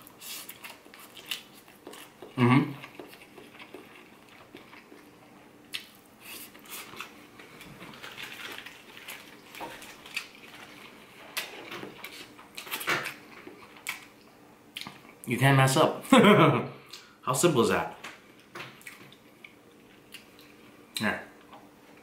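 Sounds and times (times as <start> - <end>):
person chewing food: 0.0 - 15.2.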